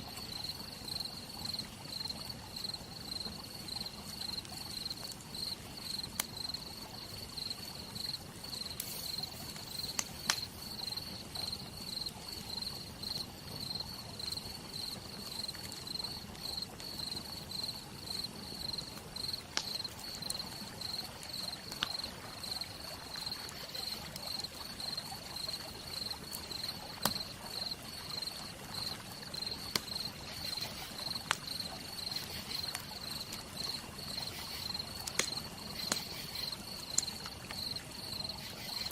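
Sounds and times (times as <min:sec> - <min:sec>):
campfire crackling: 0:00.0 - 0:38.9
cricket trilling: 0:00.3 - 0:38.9
rain hissing: 0:04.3 - 0:12.3.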